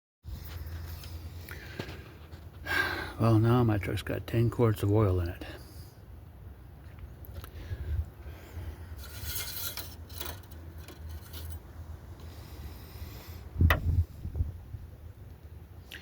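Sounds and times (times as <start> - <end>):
metal dipstick scraping: 9.0 - 11.8.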